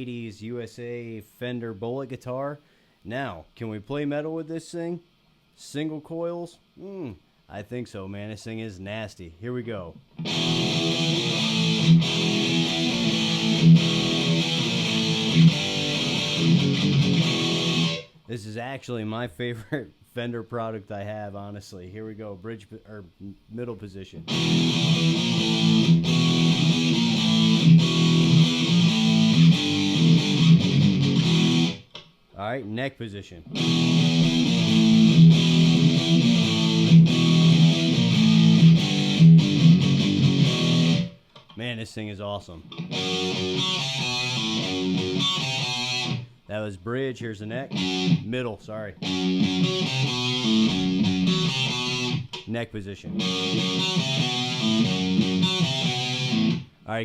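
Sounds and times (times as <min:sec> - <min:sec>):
distorted electric guitar riff: 0:10.1 - 0:18.2, 0:24.2 - 0:32.0, 0:33.4 - 0:41.2, 0:42.6 - 0:46.4, 0:47.5 - 0:56.7.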